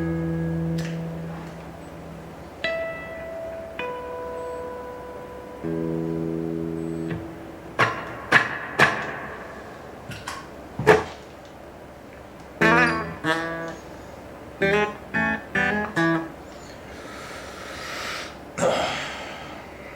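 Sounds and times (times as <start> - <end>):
electric guitar chords with reverb: 0.0 - 11.2, 12.6 - 13.9, 14.6 - 16.5.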